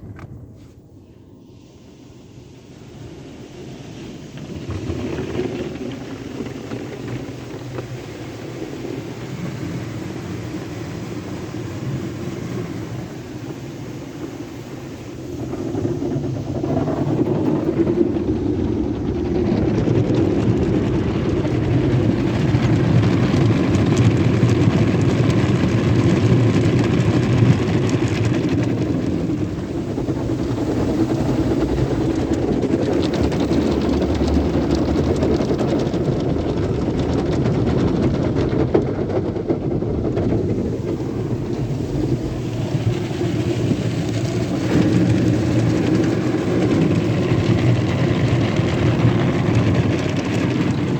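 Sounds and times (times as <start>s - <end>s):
car wash machinery running: 1.2s - 50.9s.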